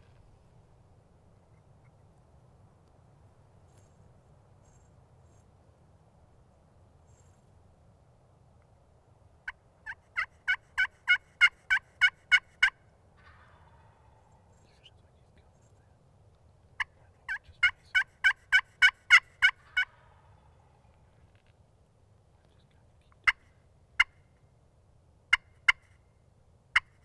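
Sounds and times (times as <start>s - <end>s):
turkey yelping: 9.5s - 14.3s, 16.8s - 20.6s.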